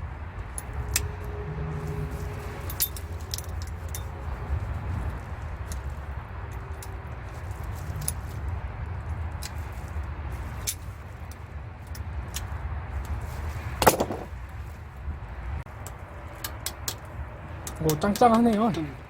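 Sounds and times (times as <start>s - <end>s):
low rumble: 0.0s - 16.2s
metal tools clinking: 0.4s - 4.7s, 13.3s - 14.3s.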